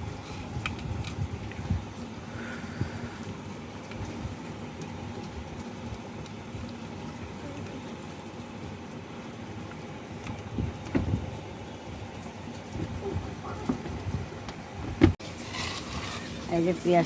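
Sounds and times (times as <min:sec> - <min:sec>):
onions sizzling in oil: 0:15.2 - 0:17.0.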